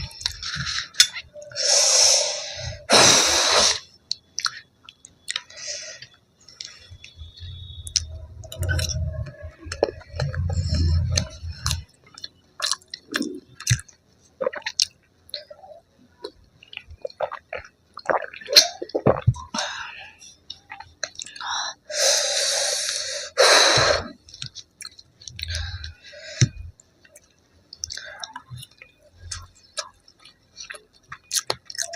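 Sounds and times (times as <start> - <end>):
chewing with wet mouth clicks: 4.0 - 19.5, 20.5 - 21.5, 24.2 - 31.9
noisy bursts: 6.7 - 11.9
low rumble: 7.0 - 11.8.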